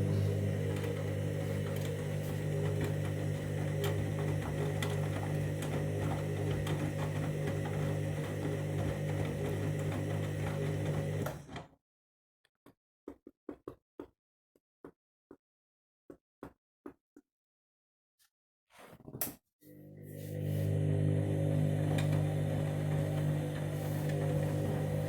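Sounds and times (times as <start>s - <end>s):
washing machine motor hum: 0.0s - 11.5s, 19.7s - 25.0s.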